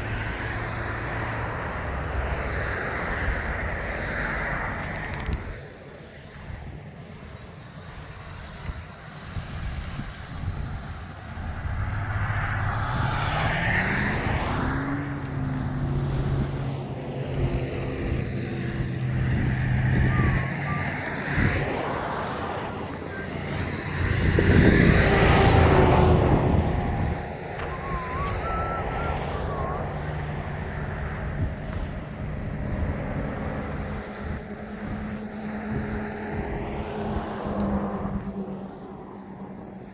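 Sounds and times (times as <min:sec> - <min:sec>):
car engine and road noise: 0:00.0 - 0:39.9
vehicle passing close by: 0:09.4 - 0:39.9.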